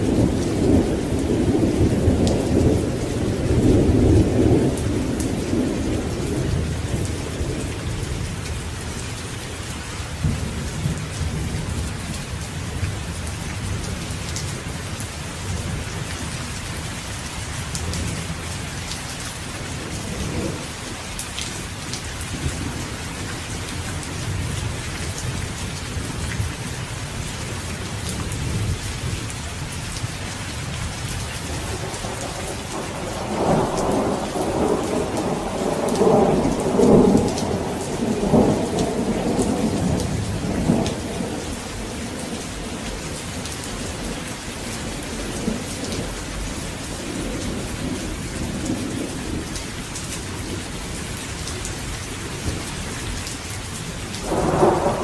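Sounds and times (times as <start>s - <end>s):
steady rain: 0.0s - 55.0s
thunder rumble: 31.5s - 49.6s, 54.1s - 55.0s.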